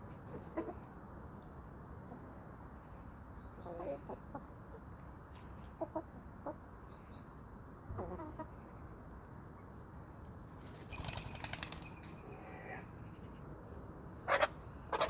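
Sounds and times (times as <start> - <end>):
chickens clucking: 0.3 - 1.0, 3.6 - 4.8, 5.8 - 6.6, 8.0 - 8.6, 14.3 - 15.0.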